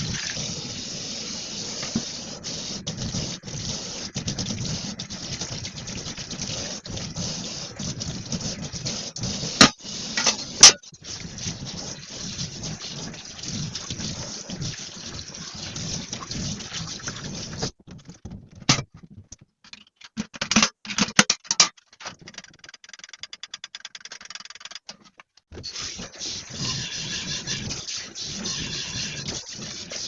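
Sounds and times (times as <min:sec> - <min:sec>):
tap water running into sink: 0:00.0 - 0:17.8, 0:25.6 - 0:30.0.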